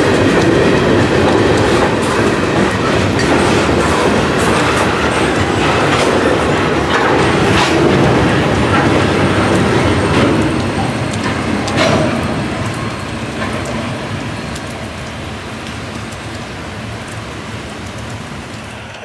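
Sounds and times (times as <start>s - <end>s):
freight train wheels knocking: 0.0s - 17.2s
steady hiss of rain: 0.0s - 19.0s
train rumble: 0.0s - 19.0s.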